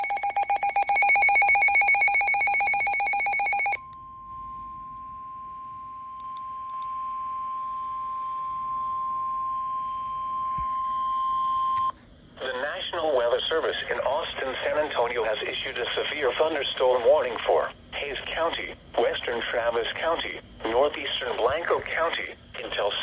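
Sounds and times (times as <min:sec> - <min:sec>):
steady alarm tone: 0:00.0 - 0:11.9.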